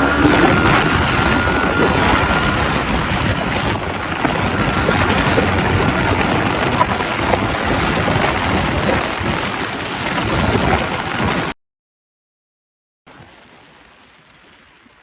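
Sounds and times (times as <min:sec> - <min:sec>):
motorcycle engine accelerating: 0:00.0 - 0:11.4
wind rush over microphone: 0:00.0 - 0:11.5.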